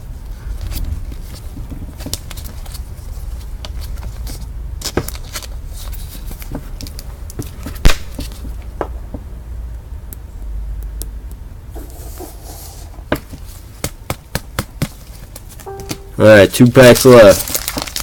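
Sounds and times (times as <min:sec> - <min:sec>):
low steady hum: 0:00.0 - 0:17.9
cards clicking and rustling: 0:00.6 - 0:08.6, 0:16.8 - 0:18.0.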